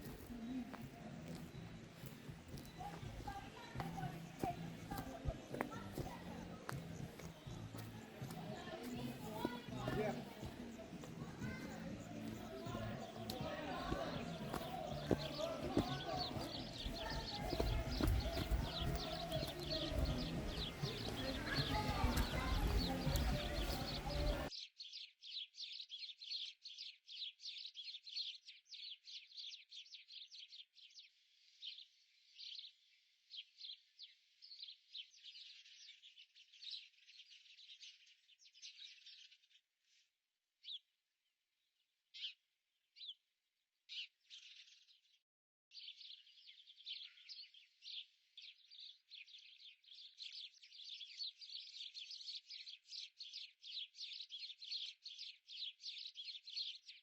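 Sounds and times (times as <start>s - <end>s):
small birds chirping: 0.0s - 39.4s, 45.8s - 57.0s.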